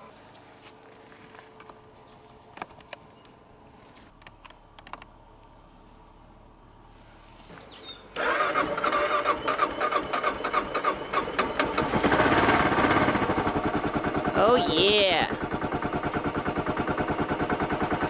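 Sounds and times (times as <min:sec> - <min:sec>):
motorcycle engine cranking: 0:08.1 - 0:18.0
motorcycle engine running: 0:08.2 - 0:18.0.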